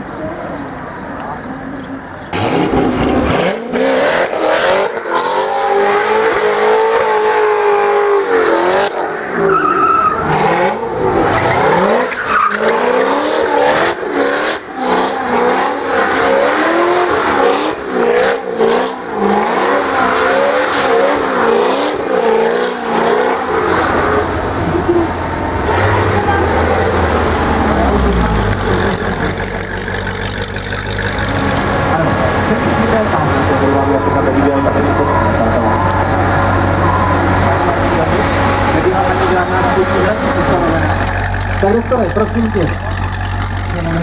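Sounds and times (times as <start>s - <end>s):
car engine revving: 0.0s - 44.0s
tyres spinning and squealing: 0.0s - 44.0s
deep engine rumble: 23.4s - 44.0s.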